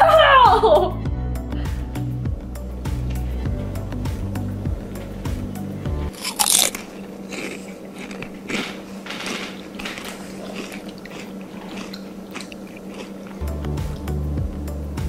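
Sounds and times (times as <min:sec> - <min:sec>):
person biting into a burger: 0:06.1 - 0:08.9
crunchy chewing: 0:06.1 - 0:13.4.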